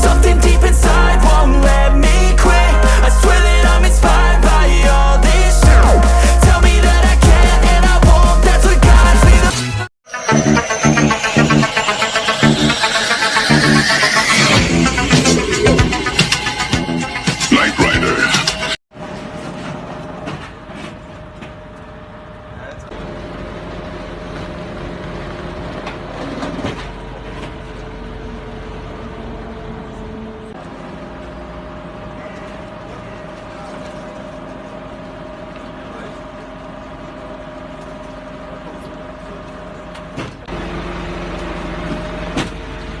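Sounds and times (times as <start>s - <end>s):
vehicle engine humming: 0.0s - 9.8s.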